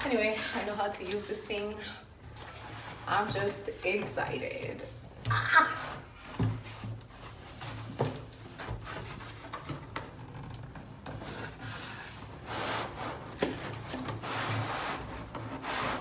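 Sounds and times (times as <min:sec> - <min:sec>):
cardboard box rubbing and scraping: 0:11.2 - 0:16.0.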